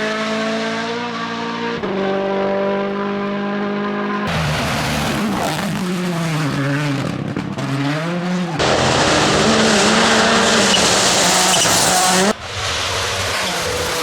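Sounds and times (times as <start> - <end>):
car holding high revs: 0.0 - 12.4
rally car engine revving: 0.0 - 14.0
loud rushing noise: 8.6 - 14.0.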